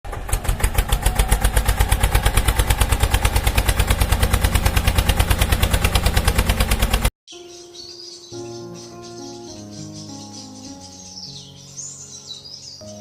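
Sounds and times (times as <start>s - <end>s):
engine chugging: 0.0s - 7.1s.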